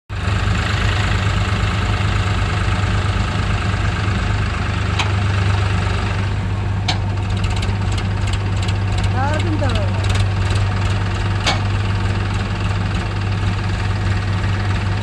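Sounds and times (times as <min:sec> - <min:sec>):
tractor diesel engine idling: 0:00.1 - 0:15.0.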